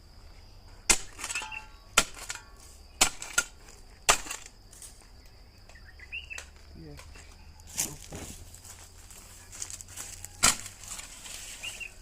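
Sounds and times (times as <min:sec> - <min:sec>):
high insect trill: 0:00.0 - 0:12.0.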